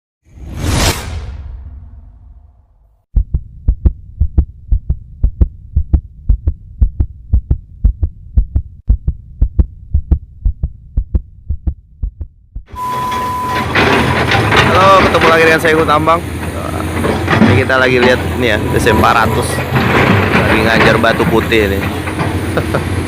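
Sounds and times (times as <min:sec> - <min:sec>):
heartbeat thudding: 0:03.1 - 0:12.8.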